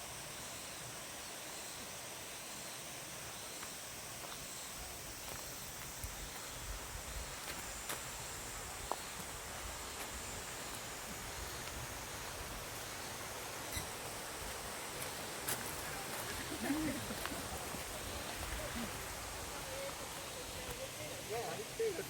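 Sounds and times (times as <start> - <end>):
insects buzzing: 0.0 - 22.0
outdoor background hiss: 0.0 - 22.0
footsteps on trail: 3.6 - 21.0.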